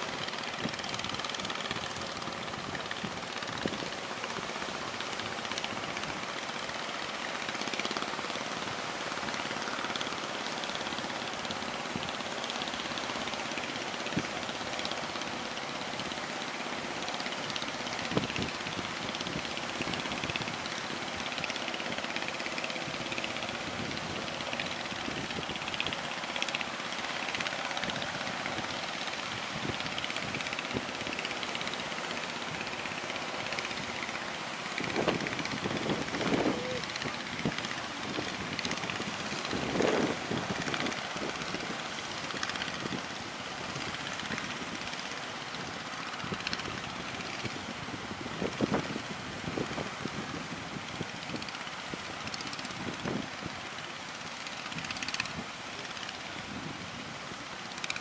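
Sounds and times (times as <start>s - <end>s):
boat engine running: 0.0s - 58.0s
sea waves: 0.0s - 58.0s
wind: 0.0s - 58.0s
strong wind: 26.8s - 31.2s, 32.3s - 44.9s, 45.6s - 53.6s, 56.4s - 57.4s.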